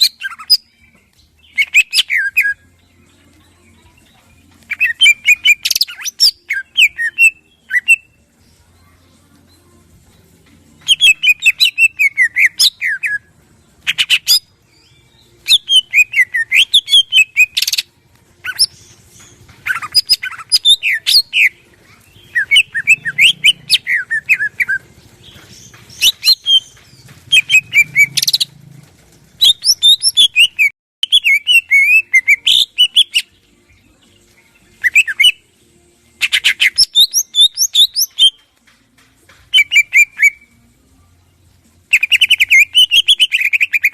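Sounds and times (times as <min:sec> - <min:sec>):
bird singing whistled phrases: 0:00.0 - 0:02.7, 0:04.7 - 0:08.2, 0:10.8 - 0:13.3, 0:13.9 - 0:17.8, 0:19.6 - 0:21.6, 0:22.3 - 0:24.8, 0:26.0 - 0:26.7, 0:27.3 - 0:28.4, 0:29.4 - 0:33.3, 0:34.8 - 0:35.4, 0:36.2 - 0:38.4, 0:39.5 - 0:40.5, 0:41.9 - 0:43.9.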